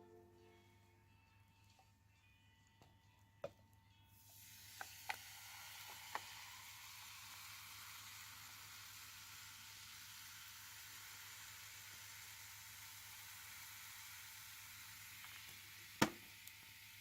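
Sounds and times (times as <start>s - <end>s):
food sizzling on fire pit: 4.2s - 17.0s
small pops: 15.2s - 16.6s.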